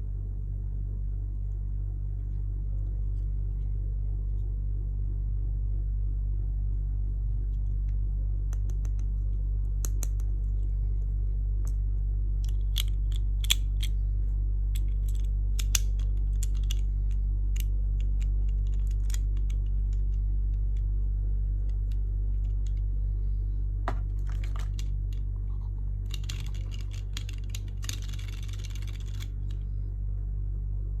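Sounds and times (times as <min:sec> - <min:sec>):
steady low hum: 0:00.0 - 0:31.0
plastic parts clicking and tapping: 0:14.8 - 0:20.9, 0:23.9 - 0:25.2, 0:26.1 - 0:29.3.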